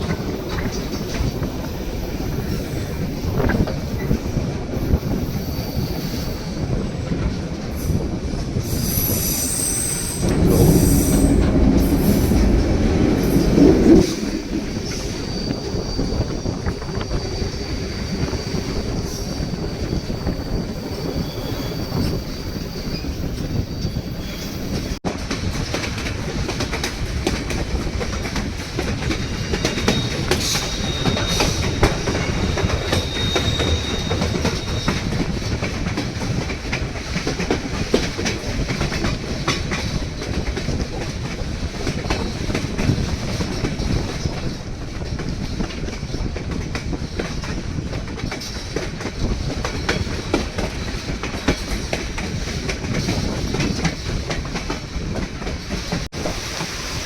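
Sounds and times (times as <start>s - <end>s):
train rumbling on track: 0.0s - 57.0s
high wheel squeal: 8.7s - 25.0s, 29.3s - 35.3s
wheels clicking over rail joints: 24.7s - 57.0s.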